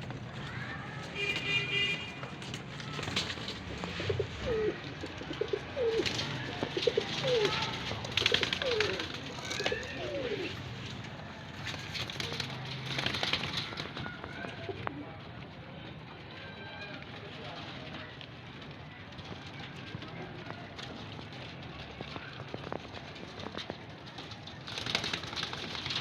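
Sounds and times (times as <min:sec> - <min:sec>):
pigeons cooing: 0:02.8 - 0:10.6.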